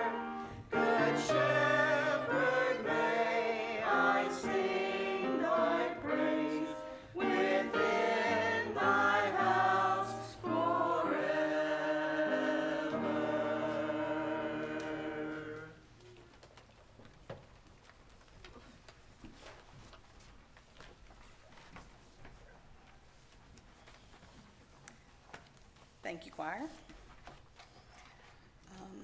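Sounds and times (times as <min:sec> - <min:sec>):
choir singing in parts: 0:00.0 - 0:15.8.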